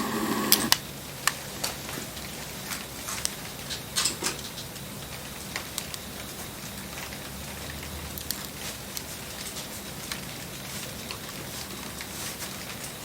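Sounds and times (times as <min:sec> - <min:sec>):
steady rain hiss: 0:00.0 - 0:13.0
campfire crackles and pops: 0:00.7 - 0:13.0.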